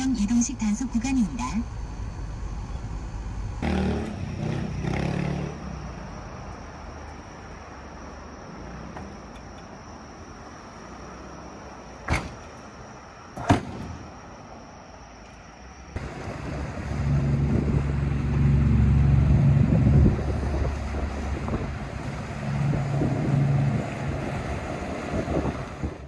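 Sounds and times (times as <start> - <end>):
motorcycle engine hum: 0.0 - 7.7, 15.9 - 26.0
wind and road noise: 0.0 - 26.0.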